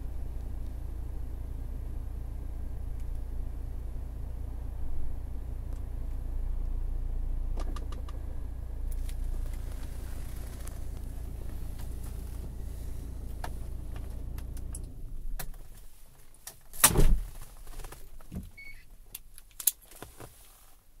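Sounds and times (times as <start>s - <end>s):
car engine idling: 0.0s - 16.7s
sharp clicks and knocks: 7.6s - 8.2s.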